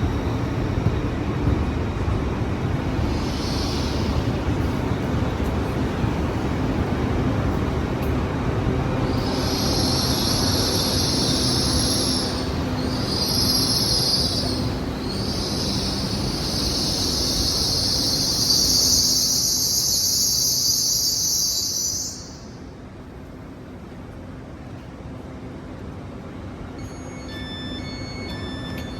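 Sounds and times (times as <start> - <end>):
train rumble: 0.0 - 28.9
train wheels squealing: 3.0 - 4.6, 9.0 - 22.7, 26.8 - 28.9.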